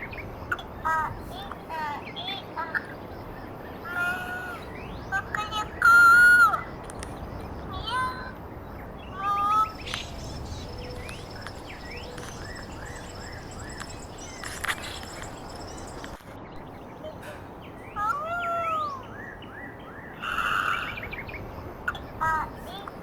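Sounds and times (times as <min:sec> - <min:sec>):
small birds chirping: 0:00.0 - 0:23.0
long drawn-out animal call: 0:20.2 - 0:21.1.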